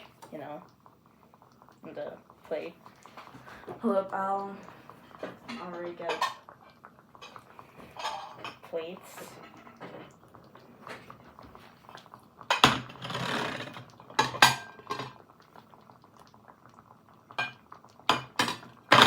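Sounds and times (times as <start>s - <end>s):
plate scraping: 7.3s - 8.5s, 12.9s - 13.8s
ceramic plates clinking: 8.0s - 8.6s.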